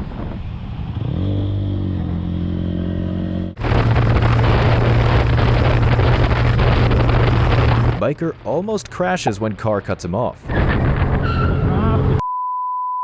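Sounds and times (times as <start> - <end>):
rush of wind and road noise: 0.0 - 8.7, 10.2 - 12.2
motorcycle engine accelerating: 0.1 - 8.0.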